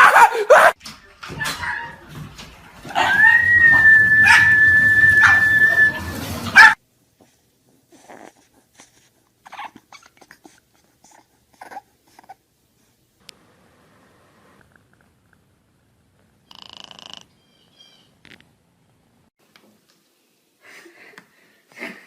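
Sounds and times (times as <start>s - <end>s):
dog whining: 2.9s - 6.0s, 9.4s - 12.4s.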